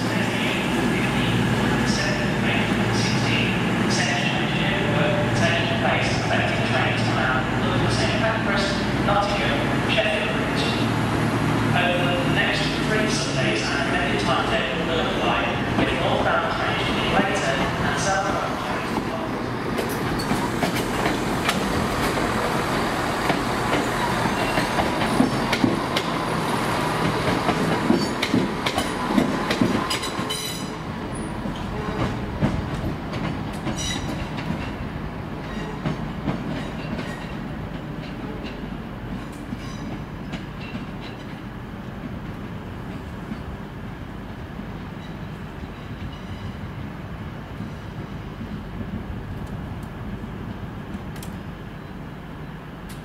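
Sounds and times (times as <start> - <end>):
train wheels clicking over rail joints: 17.4 - 43.4.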